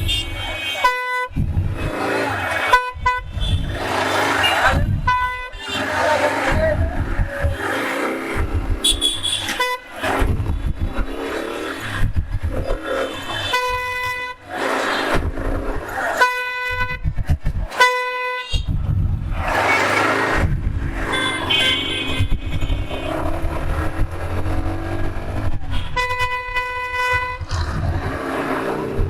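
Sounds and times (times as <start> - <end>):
vehicle horn blasts: 0.0 - 1.4, 2.6 - 6.3, 8.8 - 10.0, 13.3 - 15.0, 16.2 - 17.1, 17.8 - 18.7, 21.0 - 23.4, 25.7 - 27.6
road and engine rumble: 0.0 - 29.0.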